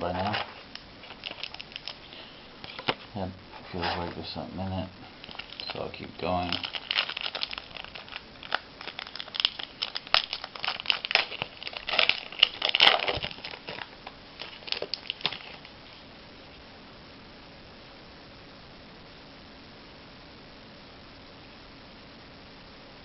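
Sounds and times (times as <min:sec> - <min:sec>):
wrapper crinkling and rustling: 0:00.0 - 0:04.4, 0:05.1 - 0:16.0.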